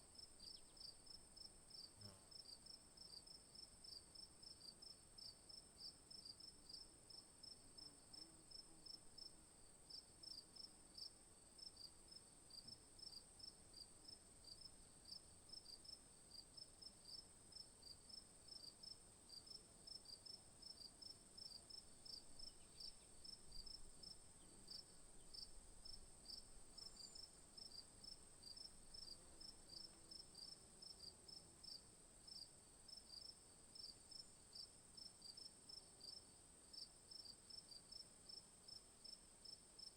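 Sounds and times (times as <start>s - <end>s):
insects chirping: 20.7s - 30.6s.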